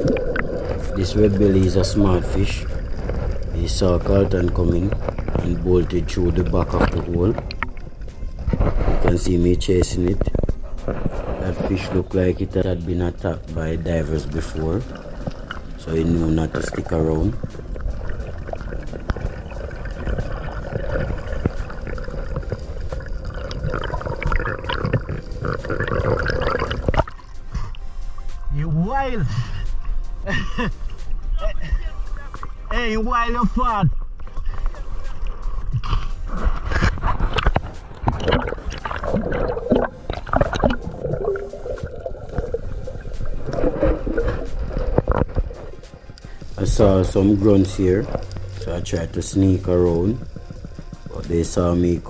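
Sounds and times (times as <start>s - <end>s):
underwater rumble of moving water: 0.0s - 28.2s, 31.9s - 52.0s
clicks and crackle: 2.6s - 9.1s, 34.2s - 41.3s.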